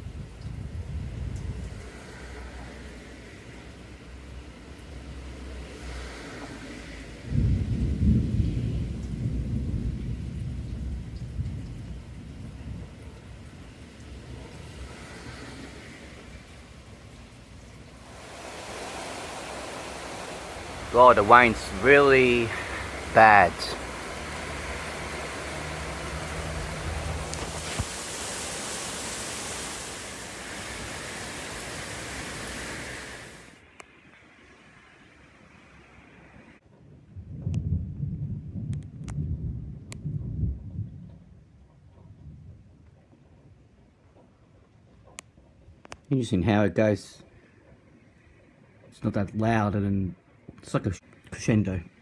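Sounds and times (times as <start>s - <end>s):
thunderclap rumble: 0.0s - 2.2s, 7.2s - 33.5s, 36.7s - 45.8s
heavy rain: 0.0s - 41.7s.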